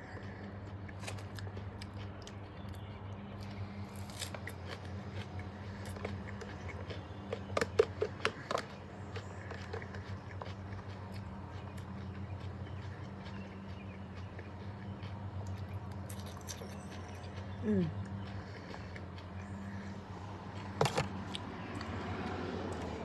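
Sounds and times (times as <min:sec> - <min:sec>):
person chewing and crunching food: 0:00.0 - 0:23.0
steady low hum: 0:00.0 - 0:23.0.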